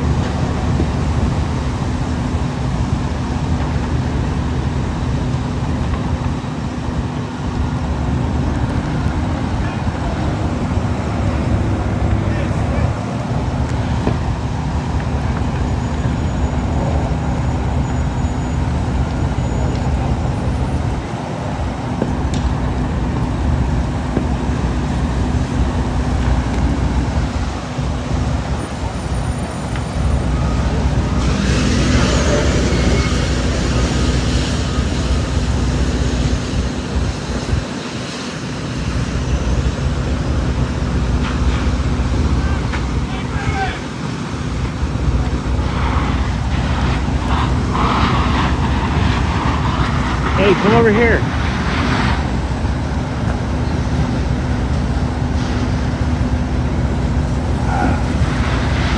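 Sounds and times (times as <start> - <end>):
road traffic rumble: 0.0 - 58.9
vehicle engines running: 0.0 - 58.9
loud rushing: 39.0 - 52.8.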